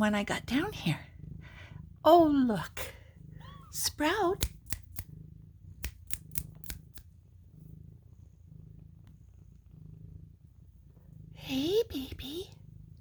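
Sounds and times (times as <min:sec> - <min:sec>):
cat purring: 0:00.0 - 0:13.0
sharp clicks: 0:04.4 - 0:05.1, 0:05.8 - 0:07.1.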